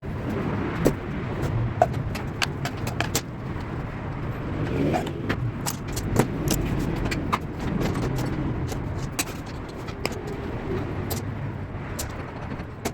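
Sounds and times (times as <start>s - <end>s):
steady low rumble: 0.0s - 12.9s
tools clicking and tapping: 0.8s - 3.7s, 5.6s - 10.4s.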